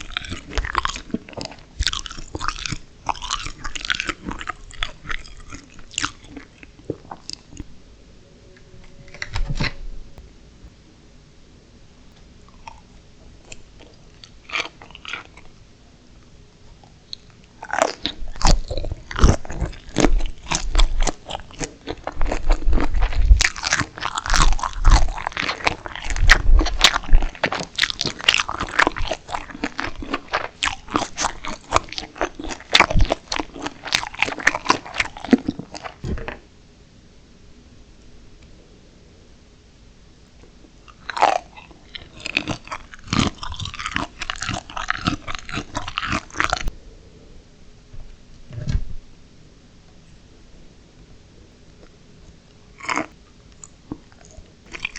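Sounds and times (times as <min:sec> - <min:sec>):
crunching and chewing shrimp: 0:00.0 - 0:07.7, 0:12.5 - 0:15.6, 0:16.7 - 0:36.4, 0:40.8 - 0:46.7, 0:51.6 - 0:54.9.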